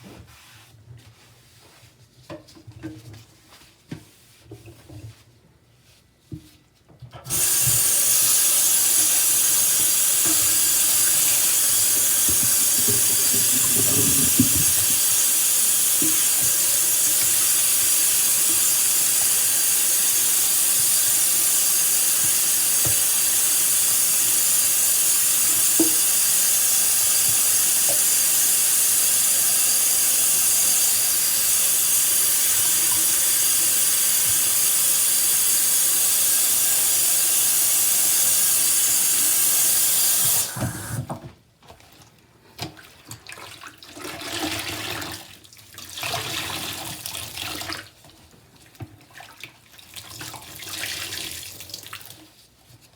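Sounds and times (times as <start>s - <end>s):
wet sponge sounds: 0.0s - 2.2s, 10.2s - 17.2s
tap water running onto sponge: 7.3s - 41.9s
water dripping: 8.9s - 23.7s.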